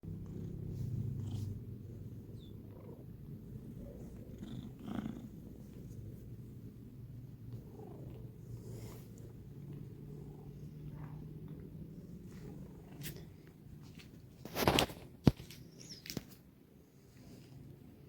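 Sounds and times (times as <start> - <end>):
cat purring: 0.0 - 14.3.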